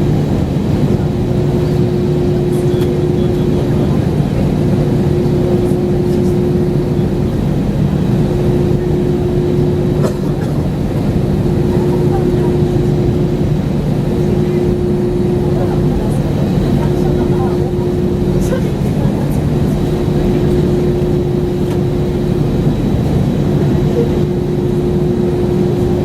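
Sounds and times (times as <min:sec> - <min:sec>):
airliner cabin engine noise: 0:00.0 - 0:26.0.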